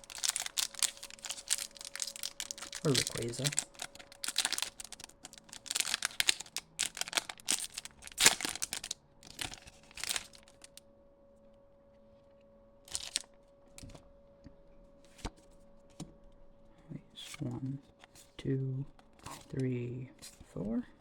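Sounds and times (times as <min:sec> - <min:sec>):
foil wrapper crinkling and tearing: 0:00.0 - 0:10.8, 0:12.9 - 0:13.3.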